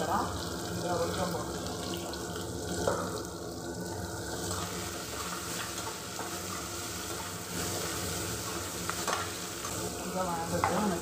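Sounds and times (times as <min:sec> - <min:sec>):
vegetables sizzling in hot oil: 0:00.0 - 0:11.0
steel spoon scraping pan: 0:04.5 - 0:09.8.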